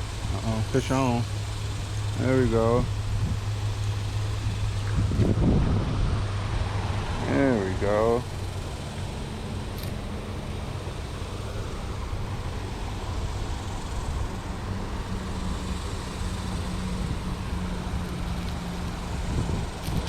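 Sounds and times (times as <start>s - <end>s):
low engine hum: 0.0s - 20.0s
road traffic rumble: 0.0s - 20.0s.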